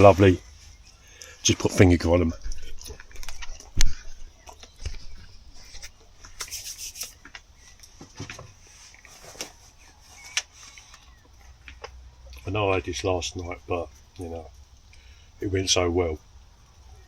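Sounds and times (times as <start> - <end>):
hissy rustle: 0.0 - 12.0
handling sounds rubbing: 2.6 - 11.1.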